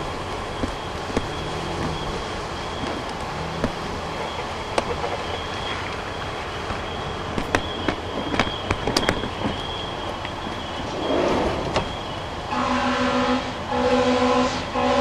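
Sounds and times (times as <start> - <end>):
outdoor background noise: 0.0 - 15.0
vehicle horn blast: 12.5 - 15.0.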